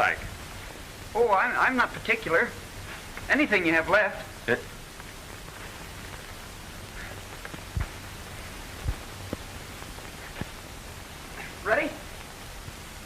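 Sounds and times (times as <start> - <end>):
old film soundtrack hiss: 0.0 - 13.0
soft low thumps: 4.7 - 11.3.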